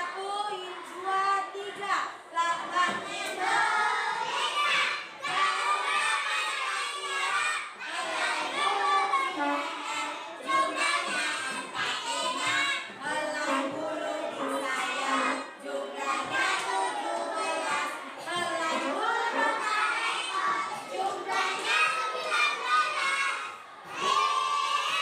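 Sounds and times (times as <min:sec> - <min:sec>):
young children chattering: 0:05.6 - 0:25.0.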